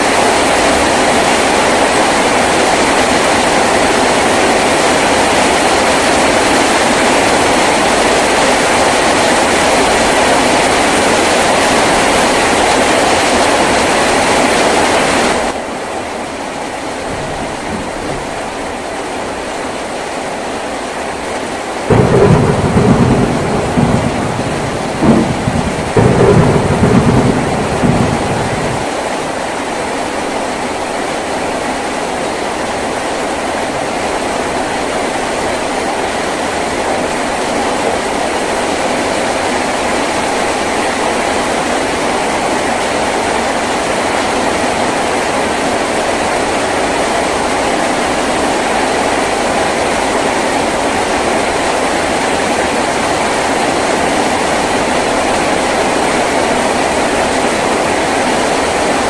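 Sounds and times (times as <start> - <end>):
heavy rain on a tin roof: 0.0 - 59.0
thunder rumbling: 16.6 - 42.0.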